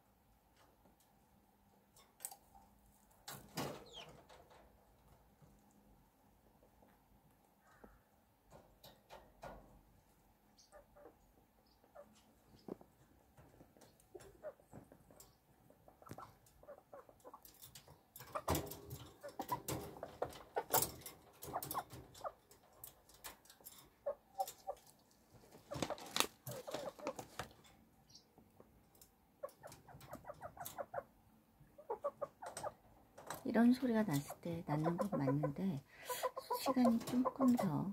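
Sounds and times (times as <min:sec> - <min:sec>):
hen clucking: 0:10.5 - 0:12.8, 0:13.9 - 0:17.6, 0:18.3 - 0:20.8, 0:23.9 - 0:27.5, 0:29.4 - 0:32.9, 0:33.5 - 0:37.9.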